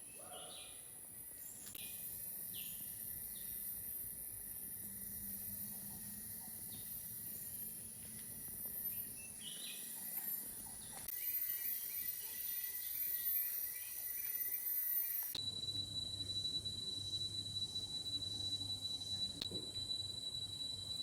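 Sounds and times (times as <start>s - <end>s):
bird chirps: 0.0s - 3.6s, 8.8s - 15.8s
insects droning: 0.0s - 21.0s.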